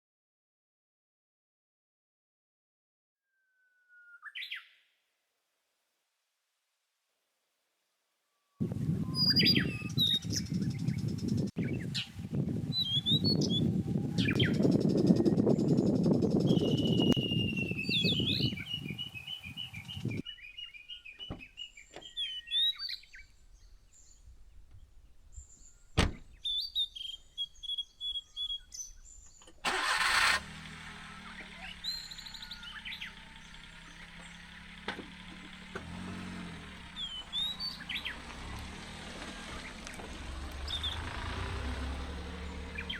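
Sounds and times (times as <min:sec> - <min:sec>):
birds chirping: 0:08.9 - 0:42.9
vehicle engine idling: 0:13.4 - 0:42.9.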